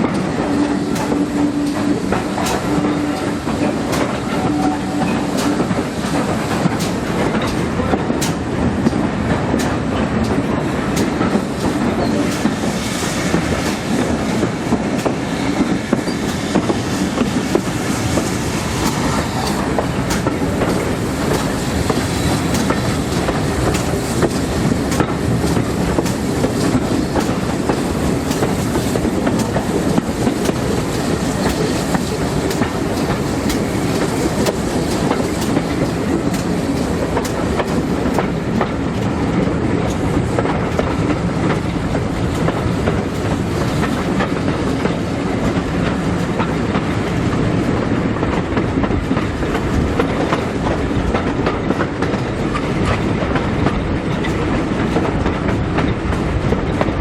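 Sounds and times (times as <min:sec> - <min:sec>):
railway carriage rumble: 0:00.0 - 0:57.0
wheels clicking over rail joints: 0:00.0 - 0:57.0.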